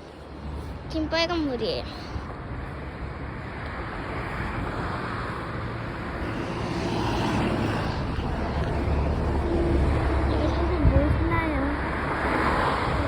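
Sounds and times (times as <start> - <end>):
road traffic passing: 0.0 - 13.0
vehicle approaching: 2.6 - 13.0.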